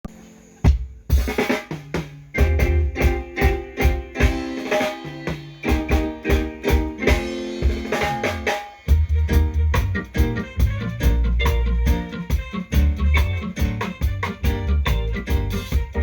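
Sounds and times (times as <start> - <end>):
drum kit beat: 0.6 - 16.0
held chords: 2.3 - 16.0
bass line: 2.4 - 4.6, 5.6 - 16.0.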